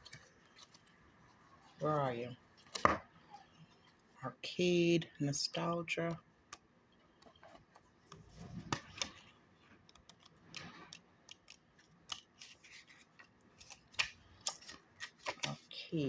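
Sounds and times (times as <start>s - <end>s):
cards sliding and rubbing: 10.0s - 15.6s.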